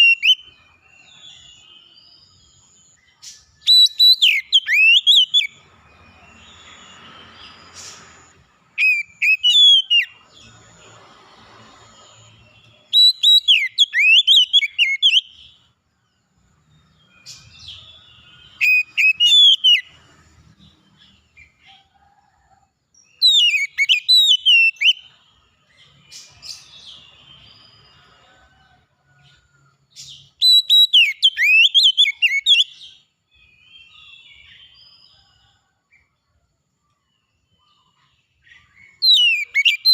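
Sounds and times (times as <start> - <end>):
songbird whistled phrases: 0.0 - 0.5, 3.6 - 5.6, 8.8 - 10.2, 12.9 - 15.4, 17.3 - 19.9, 23.2 - 25.2, 30.4 - 32.8, 38.6 - 39.9.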